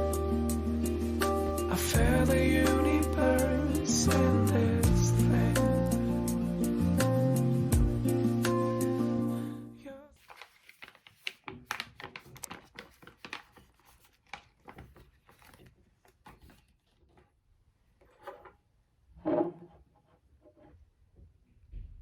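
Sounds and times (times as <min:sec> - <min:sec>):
soft rustling and crinkling: 0:10.1 - 0:18.6.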